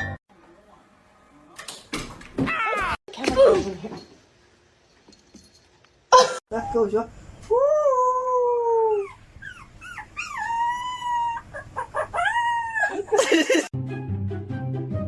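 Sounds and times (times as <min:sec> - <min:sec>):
dog yelping: 0:08.8 - 0:13.1.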